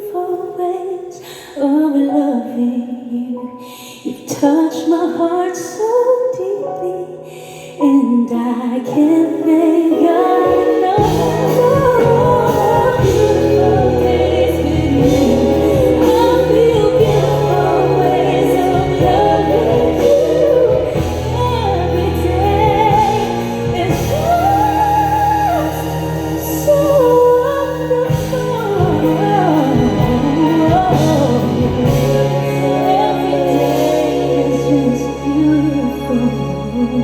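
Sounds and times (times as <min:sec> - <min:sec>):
woman singing vocal runs: 0:08.9 - 0:37.0
band playing: 0:10.1 - 0:36.5.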